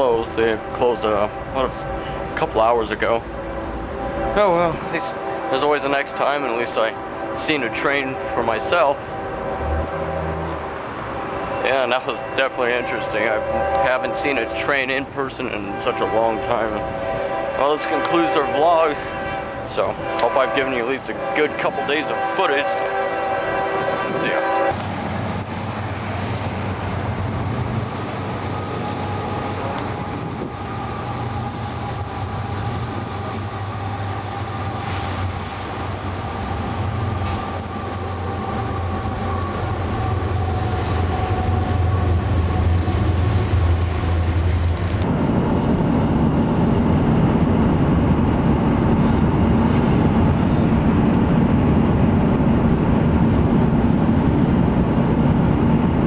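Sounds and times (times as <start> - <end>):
train rumbling on rails: 0.0 - 56.0.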